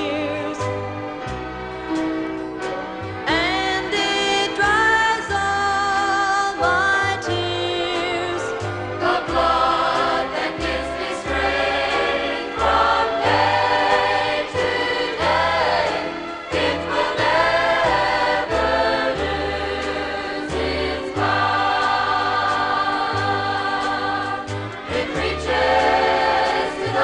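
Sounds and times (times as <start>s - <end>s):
gospel choir singing: 7.3s - 27.0s
band accompaniment: 7.4s - 27.0s.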